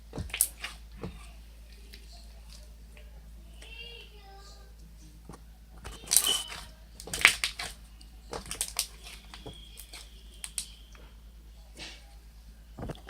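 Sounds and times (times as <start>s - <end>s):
hands handling slime: 0.1s - 2.7s, 5.3s - 10.7s
plastic containers clicking: 5.3s - 10.7s.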